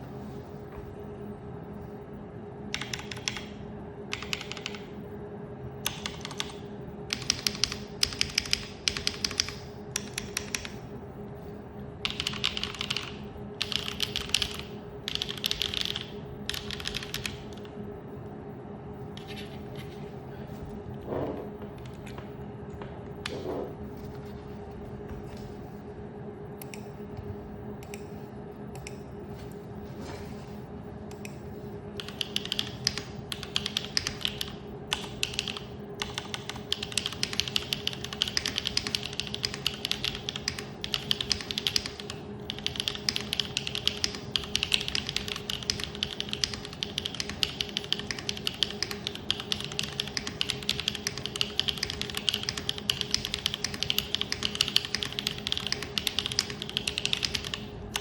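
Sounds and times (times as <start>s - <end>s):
steady low hum: 0.0s - 58.0s
mechanical keyboard typing: 2.7s - 4.9s, 5.8s - 10.8s, 12.0s - 17.7s, 32.0s - 58.0s.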